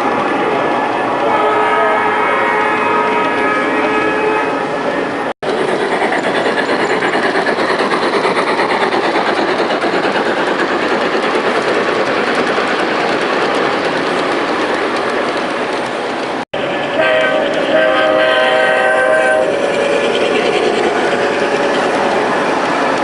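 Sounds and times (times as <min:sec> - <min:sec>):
model train wheels clattering: 0:05.5 - 0:18.0.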